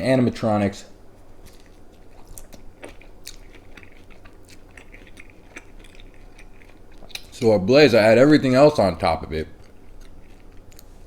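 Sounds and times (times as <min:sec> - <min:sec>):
person chewing food: 0:01.2 - 0:07.4, 0:09.5 - 0:11.0.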